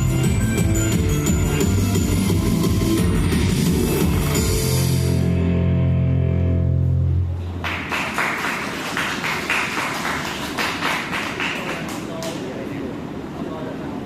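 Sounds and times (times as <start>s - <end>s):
audience clapping: 7.5s - 12.5s.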